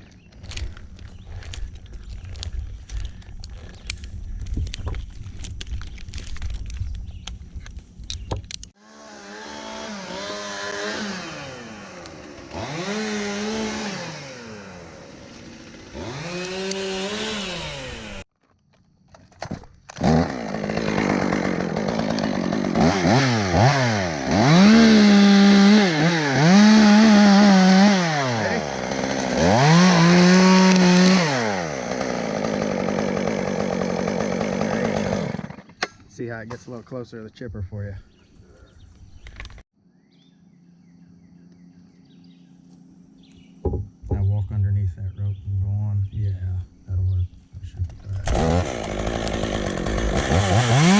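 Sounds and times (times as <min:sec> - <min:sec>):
chainsaw engine revving: 0:08.8 - 0:18.3, 0:19.9 - 0:35.9, 0:48.1 - 0:50.9.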